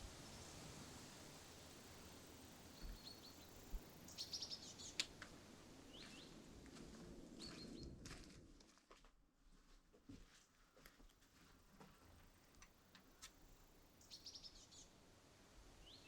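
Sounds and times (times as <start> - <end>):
forest background hiss: 0.0 - 6.6, 11.6 - 16.0
small birds chirping: 2.8 - 5.1, 13.6 - 14.9.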